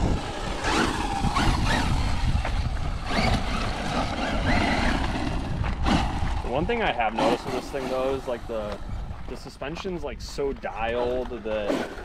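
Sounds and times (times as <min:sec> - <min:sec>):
electric motor whining: 0:00.0 - 0:09.3
low rumble: 0:00.0 - 0:11.6.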